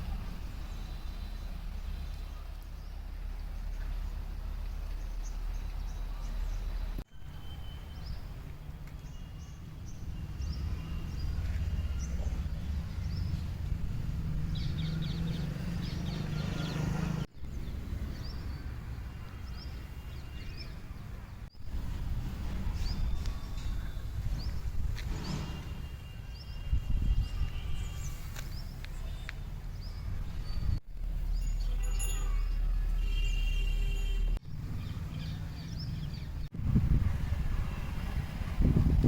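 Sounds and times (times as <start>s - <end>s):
steady low rumble: 9.6s - 15.2s
small birds chirping: 34.6s - 36.5s.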